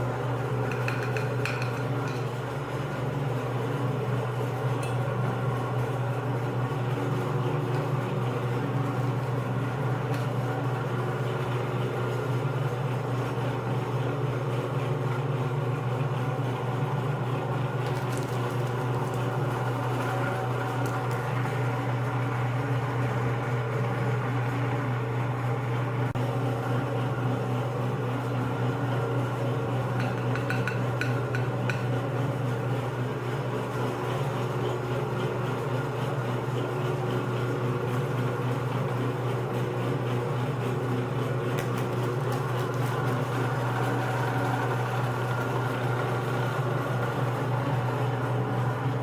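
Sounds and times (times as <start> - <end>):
electric meat grinder running: 17.0 - 29.4, 32.2 - 49.0.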